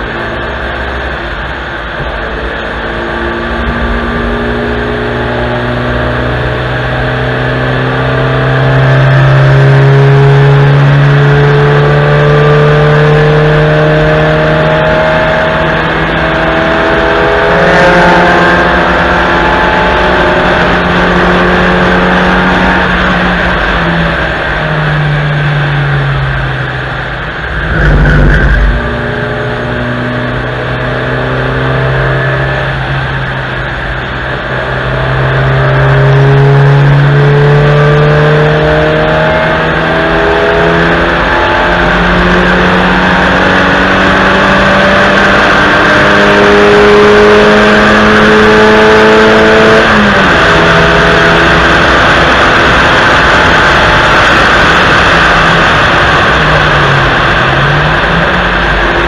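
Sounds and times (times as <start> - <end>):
low rumble: 0.0 - 6.9, 23.1 - 32.0
car engine revving: 0.0 - 59.0.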